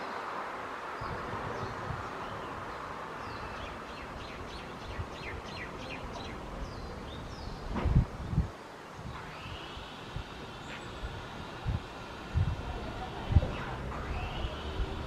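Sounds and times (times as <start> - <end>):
steady outdoor hiss: 0.0 - 15.0
bird chirping: 1.0 - 7.8, 12.8 - 15.0.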